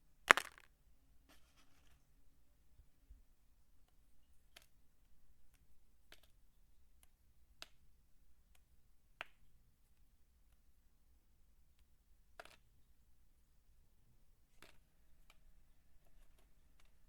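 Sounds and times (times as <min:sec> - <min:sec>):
dry soap pieces clicking: 0:00.3 - 0:00.7, 0:11.8 - 0:12.7.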